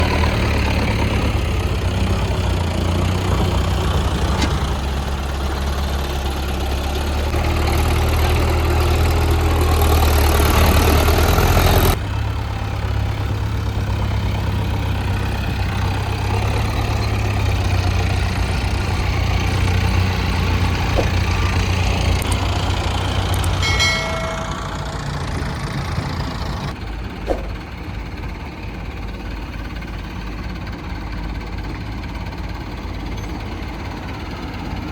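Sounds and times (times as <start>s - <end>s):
diesel engines humming: 0.0s - 34.9s
short high tone: 23.6s - 25.1s.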